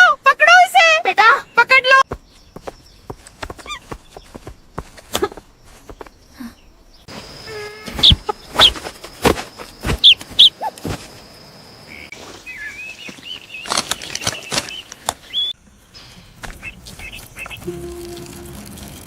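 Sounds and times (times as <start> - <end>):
cartoon flaps and thumps: 7.9 - 10.5.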